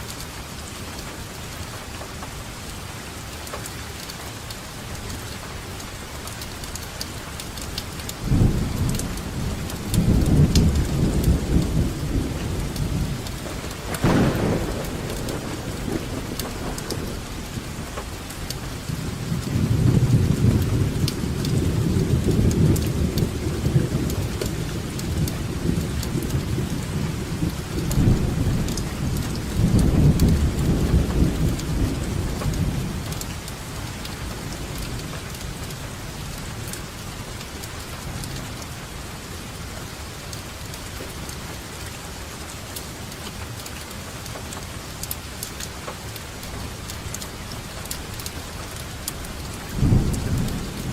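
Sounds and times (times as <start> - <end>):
steady rainfall: 0.0 - 50.9
rolling thunder: 8.2 - 33.5, 49.5 - 50.9.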